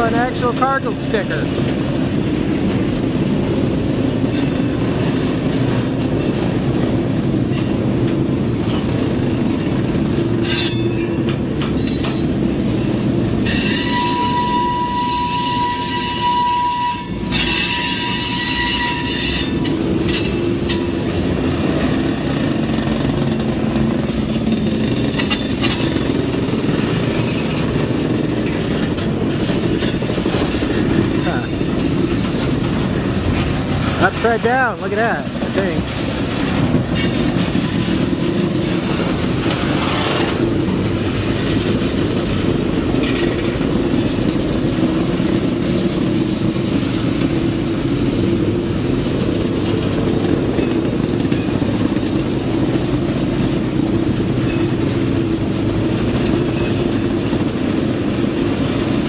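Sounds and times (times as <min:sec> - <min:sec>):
freight cars rumbling on rails: 0:00.0 - 0:59.0
high-pitched wheel squeal: 0:13.5 - 0:21.0, 0:22.0 - 0:22.5.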